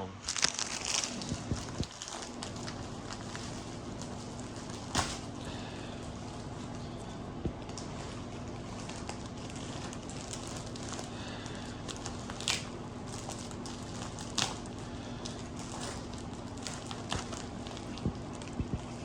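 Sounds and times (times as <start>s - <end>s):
scratchy packaging rips: 0.2s - 5.3s, 8.6s - 18.5s
packaging crinkling and rustling: 0.2s - 19.0s.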